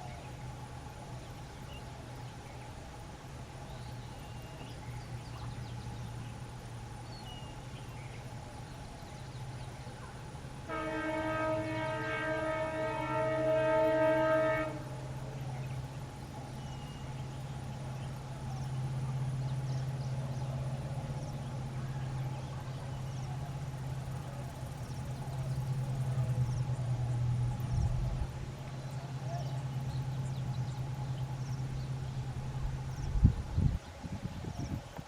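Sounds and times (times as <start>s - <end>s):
train running with low drone: 0.0s - 35.0s
locomotive air horn: 10.7s - 15.2s.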